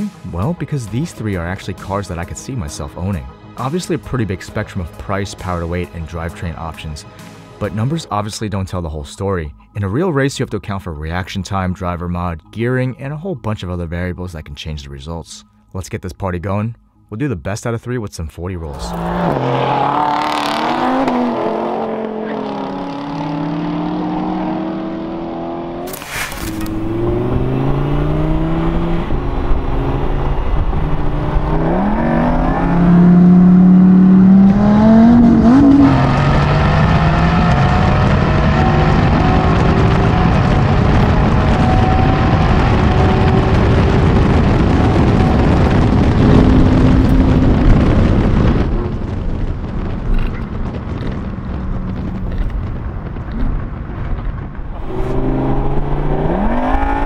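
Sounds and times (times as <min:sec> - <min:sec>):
car engines at full throttle: 0:00.0 - 0:03.8, 0:18.6 - 0:57.0
sharp crack: 0:25.8 - 0:27.3
rushing wind noise: 0:26.0 - 0:57.0.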